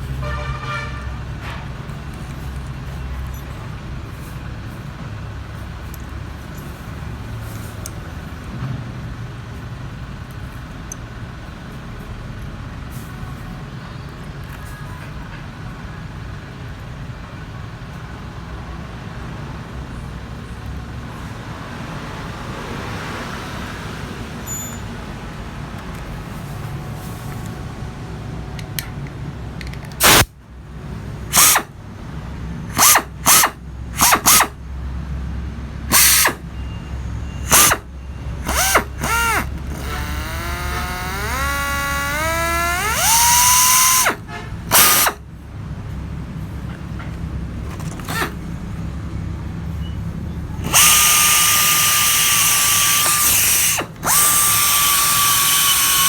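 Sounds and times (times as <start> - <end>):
pneumatic cutting tool whining: 30.0 - 30.3, 31.3 - 31.8, 32.7 - 34.6, 35.9 - 36.6, 37.4 - 45.3, 47.8 - 48.4, 50.6 - 56.0.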